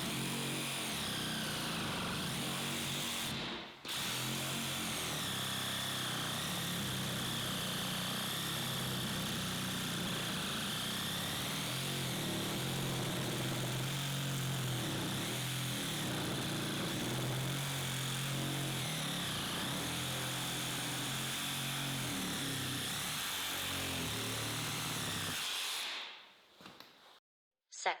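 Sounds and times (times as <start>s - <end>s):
reciprocating saw running: 4.0s - 25.8s.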